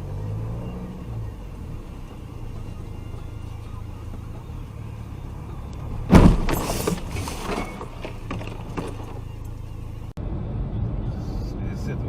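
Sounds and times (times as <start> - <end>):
car engine humming: 0.0 - 10.2
vehicle crash: 5.8 - 9.6
debris clattering: 6.0 - 9.6.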